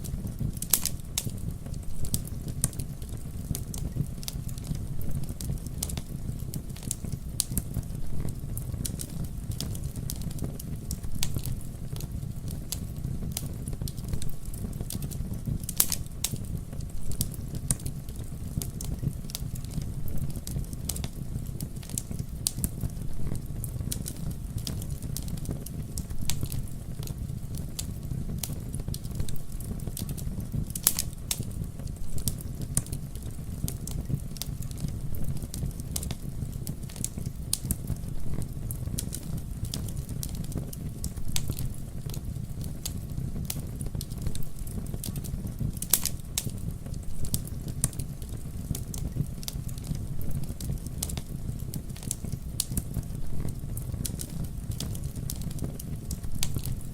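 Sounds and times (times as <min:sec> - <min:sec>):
wood fire crackling and popping: 0:00.0 - 0:56.9.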